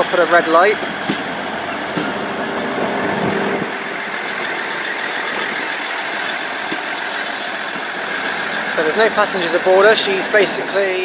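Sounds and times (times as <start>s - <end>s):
diesel train engines idling: 0.0s - 11.0s.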